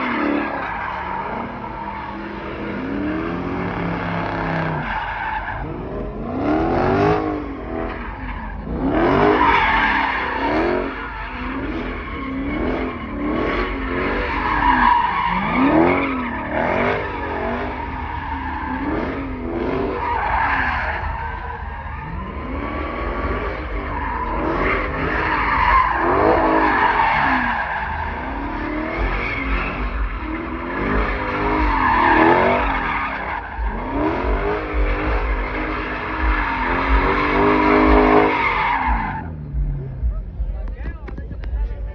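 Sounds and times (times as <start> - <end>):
car engine revving: 0.0 - 41.9.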